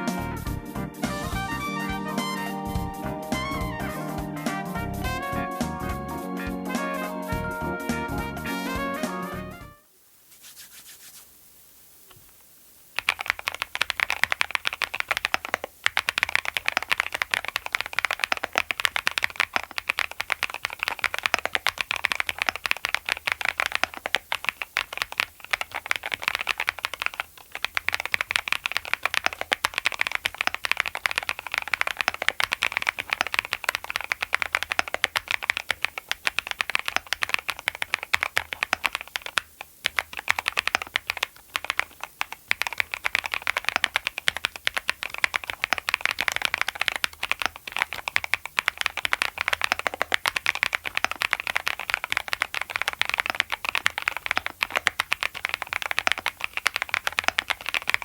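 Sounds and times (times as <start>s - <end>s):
mechanical keyboard typing: 13.0s - 58.0s.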